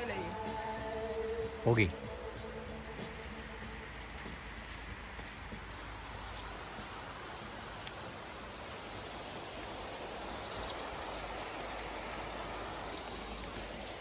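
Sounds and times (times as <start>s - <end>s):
rain falling: 0.0s - 14.0s
faint drip ticks: 2.0s - 8.2s.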